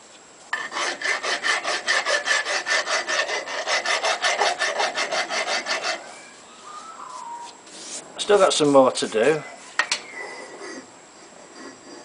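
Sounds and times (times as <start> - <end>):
hand file rasping on steel: 0.5 - 6.2.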